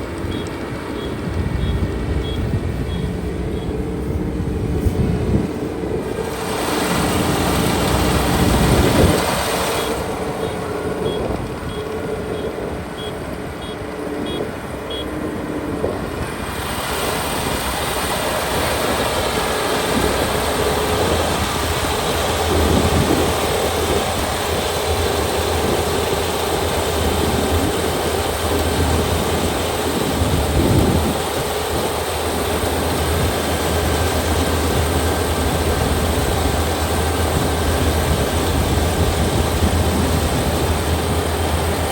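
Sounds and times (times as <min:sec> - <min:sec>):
combine harvester running: 0:00.0 - 0:41.9
deep steady hum: 0:00.0 - 0:41.9.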